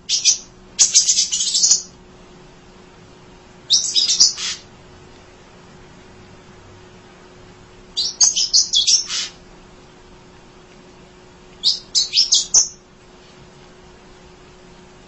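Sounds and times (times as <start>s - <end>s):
bird chirping rapidly: 0.0s - 1.9s, 3.7s - 4.6s, 8.0s - 9.4s, 11.6s - 12.8s.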